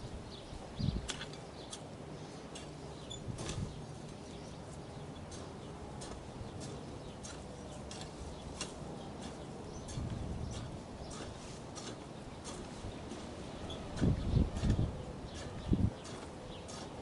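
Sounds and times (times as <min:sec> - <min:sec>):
wind rumble on microphone: 0:00.0 - 0:01.2, 0:03.1 - 0:03.9, 0:09.7 - 0:11.4, 0:12.7 - 0:16.6
garden hoe chopping soil: 0:01.0 - 0:17.0.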